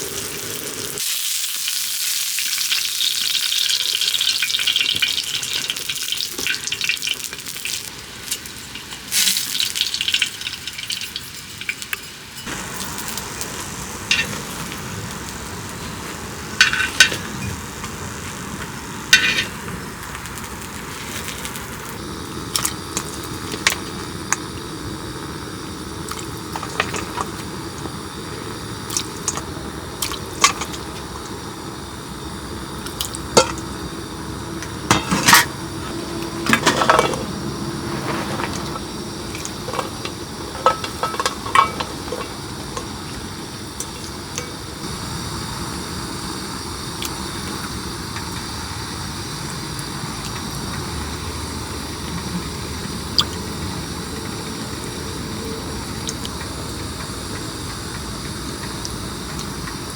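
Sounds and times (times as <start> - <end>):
food sizzling in a pan: 0.0 - 59.9
metal utensils clinking and scraping: 14.1 - 14.5, 16.6 - 17.6, 19.1 - 19.6, 26.5 - 27.5, 28.9 - 30.9, 33.4 - 33.6, 34.9 - 44.6.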